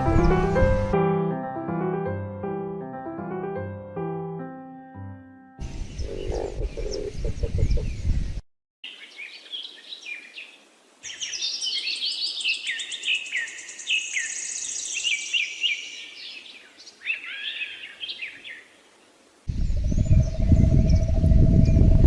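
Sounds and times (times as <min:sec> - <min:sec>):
birds chirping and singing: 0:05.6 - 0:08.3, 0:09.0 - 0:18.7, 0:19.5 - 0:22.0.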